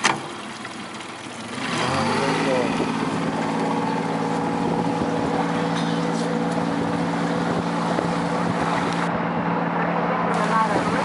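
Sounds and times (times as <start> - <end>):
outboard motor running: 0.0 - 11.0
water noise: 0.0 - 11.0
wind: 0.0 - 11.0.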